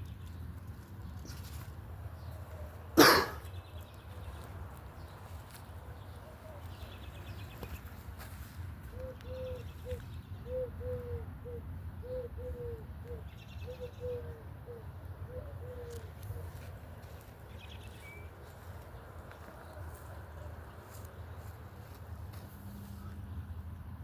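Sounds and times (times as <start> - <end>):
dove cooing: 8.8 - 16.7.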